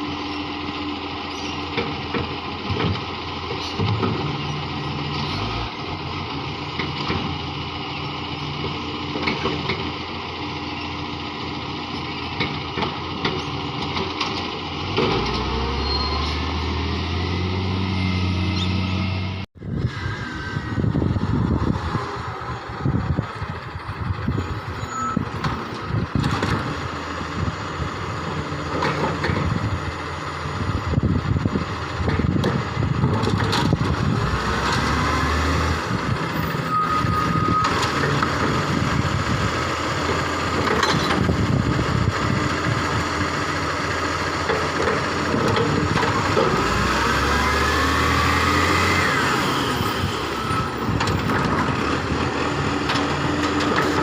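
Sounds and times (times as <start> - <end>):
garbage truck engine: 0.0 - 54.0
hydraulic whine: 14.8 - 26.3.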